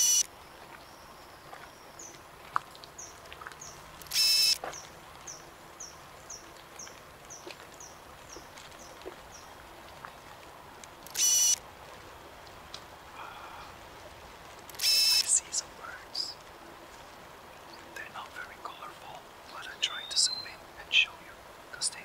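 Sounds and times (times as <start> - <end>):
harsh buzzy bird calls: 3.6 - 4.6, 11.1 - 11.6, 14.8 - 15.5
soft high bird chirps: 19.5 - 21.1.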